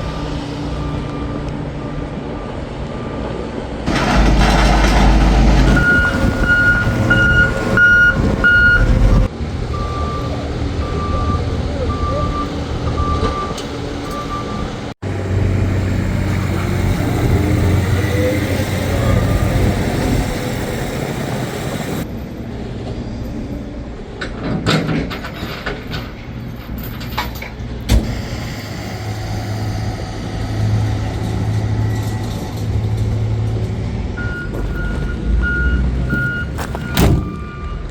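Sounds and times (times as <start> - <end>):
reversing alarm beeping: 5.7 - 14.8, 34.2 - 37.9
vehicle engine running: 14.8 - 22.1, 28.1 - 37.4.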